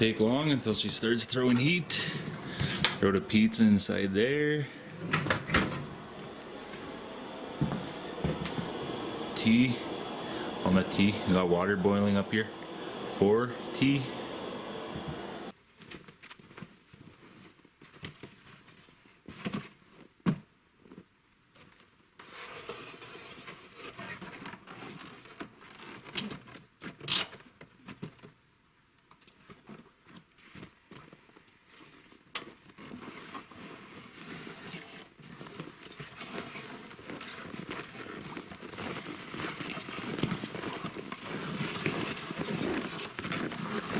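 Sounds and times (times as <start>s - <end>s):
rustling and crinkling: 15.6s - 22.5s, 29.0s - 43.9s.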